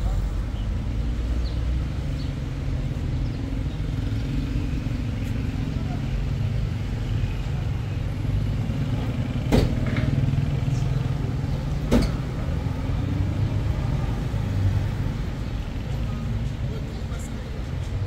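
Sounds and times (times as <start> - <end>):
vehicle engine rumble: 0.0 - 18.0
sharp knocks: 9.5 - 10.2, 11.9 - 12.2.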